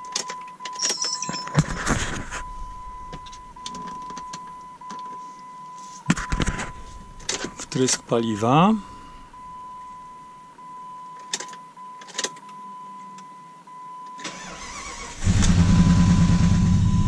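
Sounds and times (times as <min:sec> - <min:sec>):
car engine cranking and starting: 0:06.4 - 0:08.1, 0:14.2 - 0:17.0.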